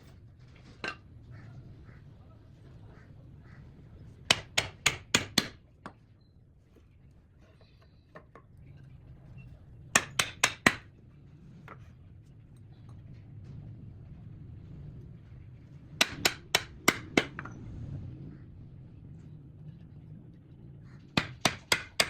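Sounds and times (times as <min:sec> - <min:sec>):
hammer striking wood: 0:04.3 - 0:05.6, 0:10.0 - 0:10.9, 0:16.0 - 0:17.5, 0:21.2 - 0:22.0.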